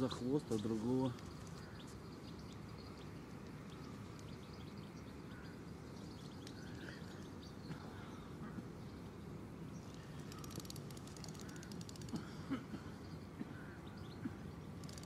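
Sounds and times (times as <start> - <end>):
faint bird chirps: 0.5 - 12.2.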